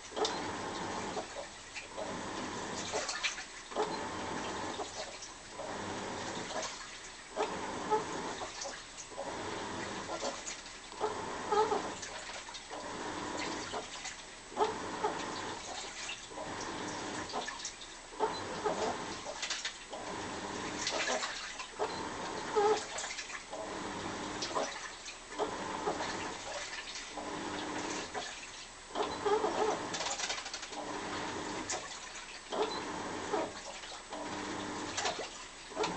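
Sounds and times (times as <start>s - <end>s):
washing machine water swishing: 0.0s - 35.9s
squeaky moaning machine tones: 0.2s - 1.3s, 11.0s - 12.1s, 18.2s - 19.2s, 21.8s - 23.0s, 29.0s - 30.2s, 32.5s - 34.3s.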